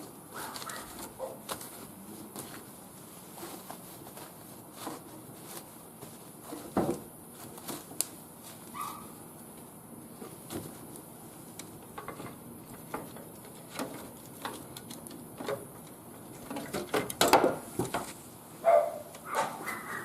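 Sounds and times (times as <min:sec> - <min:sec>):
wood fire crackling: 0:09.4 - 0:18.3.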